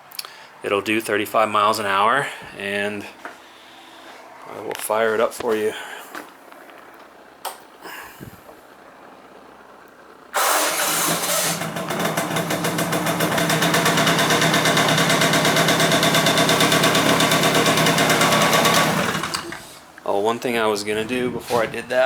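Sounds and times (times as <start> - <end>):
two-stroke engine starting and idling: 10.3 - 20.0.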